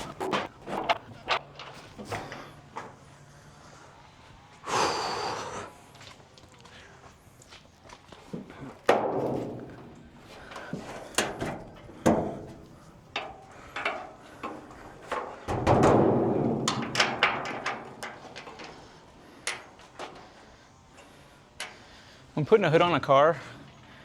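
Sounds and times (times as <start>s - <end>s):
scraping rustle: 0.0s - 3.0s
car hood knocks and clunks: 8.9s - 10.0s.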